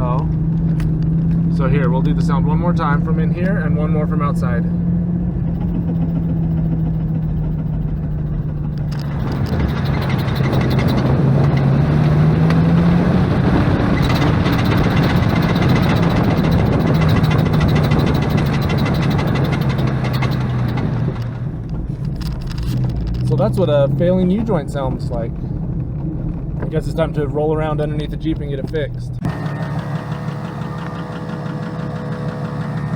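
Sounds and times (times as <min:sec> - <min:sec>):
car engine driving: 0:00.0 - 0:32.9
rapid even ticking: 0:05.2 - 0:21.8.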